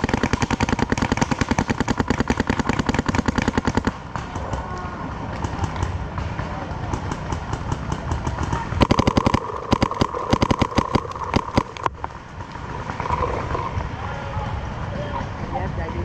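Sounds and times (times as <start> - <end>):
close paintball marker firing: 0.0 - 12.0
distant paintball shots: 0.0 - 12.1.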